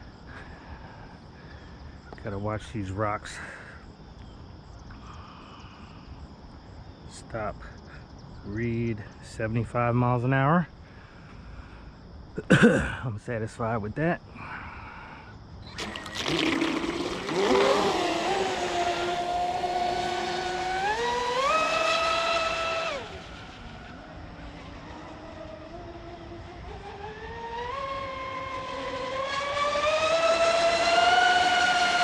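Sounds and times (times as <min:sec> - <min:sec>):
model boat motor whine: 0:15.6 - 0:32.0.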